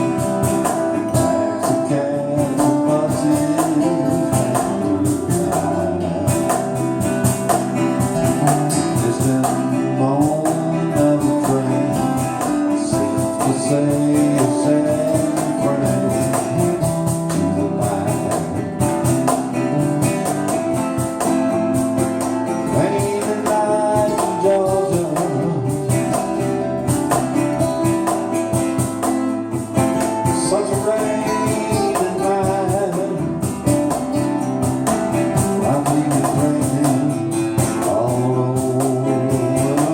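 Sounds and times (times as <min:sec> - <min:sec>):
band playing slow song: 0:00.0 - 0:39.9.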